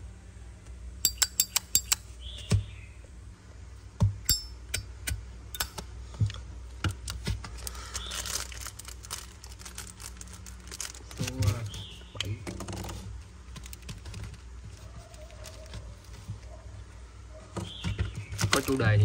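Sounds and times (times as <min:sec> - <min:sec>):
metal lighter clicks and clinks: 0:01.0 - 0:02.0.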